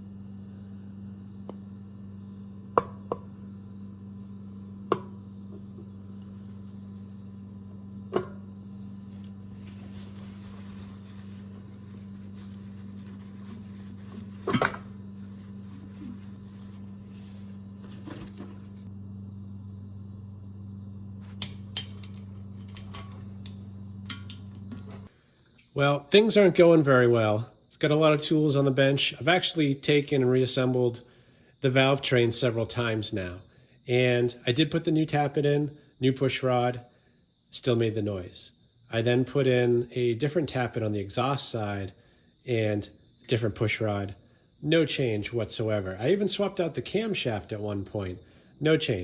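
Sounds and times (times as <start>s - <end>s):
steady low hum: 0.0s - 25.2s
metal tools clinking on workbench: 17.8s - 18.5s.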